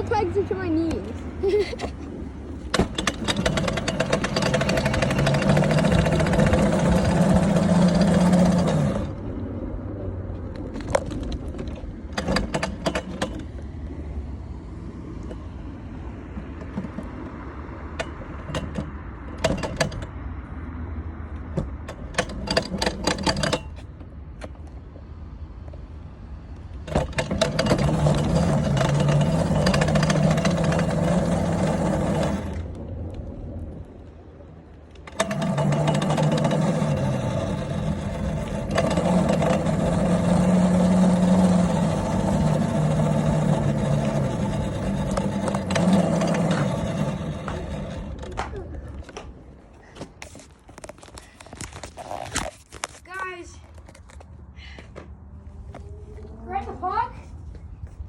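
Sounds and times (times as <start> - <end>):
dirt bike engine: 1.4 - 9.5, 26.8 - 32.9, 34.8 - 53.6
clicks and rattles: 1.7 - 9.2, 26.7 - 32.8.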